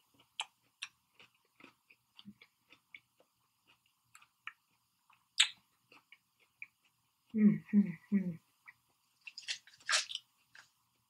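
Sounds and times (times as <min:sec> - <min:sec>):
person chewing food: 0:00.0 - 0:07.4, 0:08.6 - 0:11.0
mouth clicks and smacks: 0:00.2 - 0:07.0.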